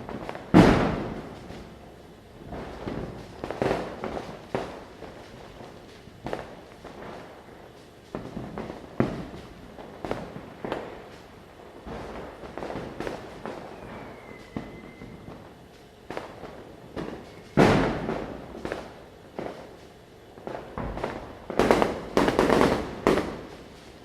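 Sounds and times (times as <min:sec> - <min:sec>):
firecrackers bursting: 0:00.0 - 0:24.0
falling whistle: 0:13.5 - 0:15.3.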